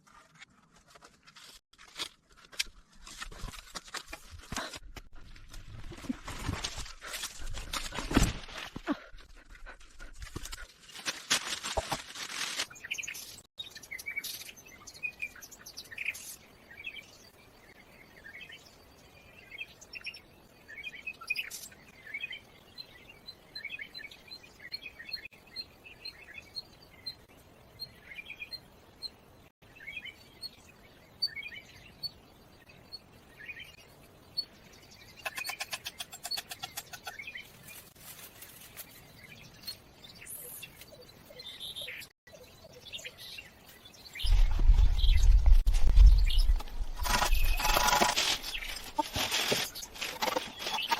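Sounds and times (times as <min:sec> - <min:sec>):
birds chirping: 0:12.8 - 0:50.9.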